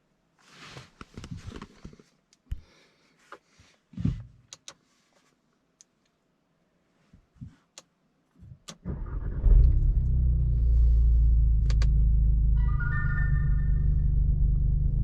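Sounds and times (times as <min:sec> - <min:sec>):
car engine starting and idling: 0:08.7 - 0:15.0
electronic chime: 0:12.6 - 0:14.3.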